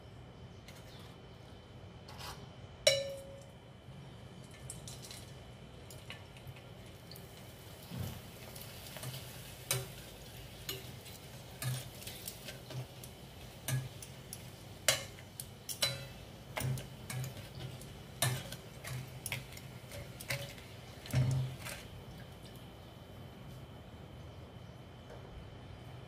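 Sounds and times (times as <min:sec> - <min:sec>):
metal tongs tapping a pot: 0:02.9 - 0:03.5, 0:09.0 - 0:21.9
faint frying sizzle: 0:03.6 - 0:24.4.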